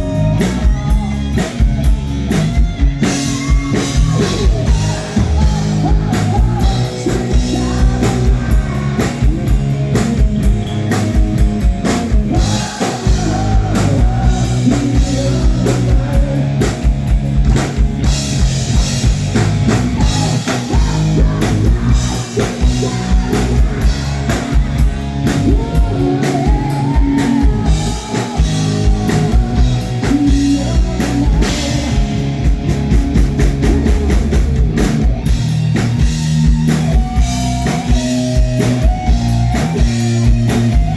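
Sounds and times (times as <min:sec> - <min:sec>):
person singing: 0:00.0 - 0:02.1, 0:03.0 - 0:09.7, 0:12.0 - 0:17.0, 0:19.9 - 0:32.3
live rock band playing: 0:00.0 - 0:40.9.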